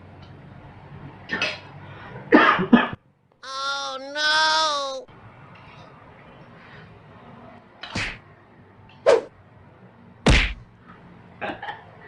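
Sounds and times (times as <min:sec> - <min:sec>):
sharp knocks: 0:10.3 - 0:10.6.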